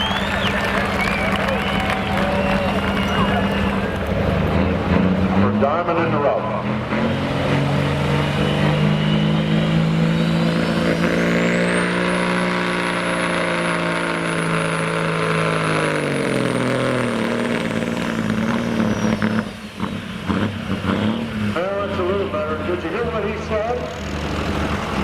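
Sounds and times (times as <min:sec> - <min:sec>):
turbocharger whistle: 0:00.0 - 0:04.2, 0:07.8 - 0:22.5
diesel truck engine under load: 0:00.0 - 0:25.0.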